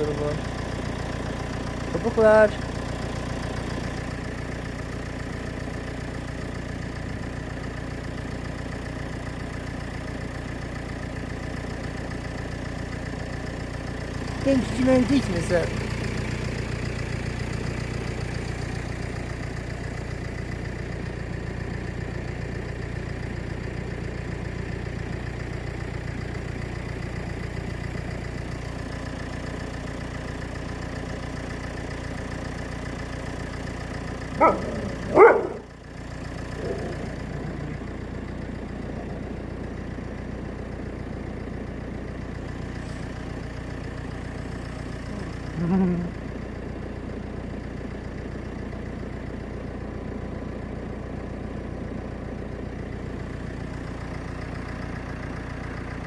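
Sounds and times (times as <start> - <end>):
vehicle engine idling: 0.0 - 56.0
dog barks: 34.4 - 35.7.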